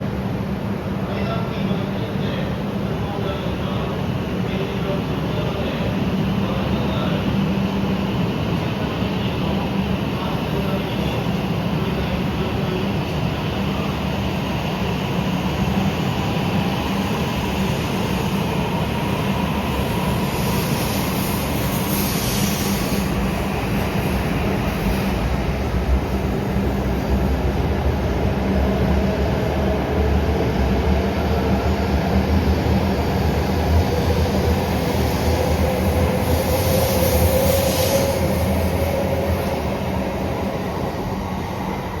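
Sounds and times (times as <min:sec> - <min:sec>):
train wheels rumbling on rail: 0:00.0 - 0:42.0
hiss: 0:16.4 - 0:25.7, 0:34.0 - 0:40.8.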